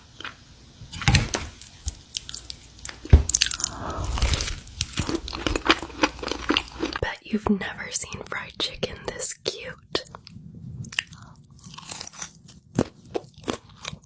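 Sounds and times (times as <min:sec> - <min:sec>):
crunchy biting and chewing: 0:00.9 - 0:07.0, 0:10.9 - 0:14.0.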